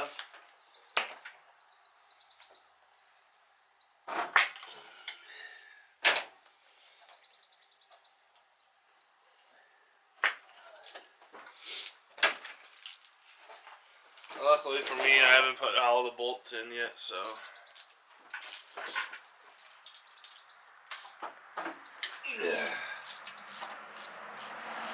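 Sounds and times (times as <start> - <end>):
crickets chirping: 0.0 - 24.9
hand tools clinking on metal: 17.2 - 19.2.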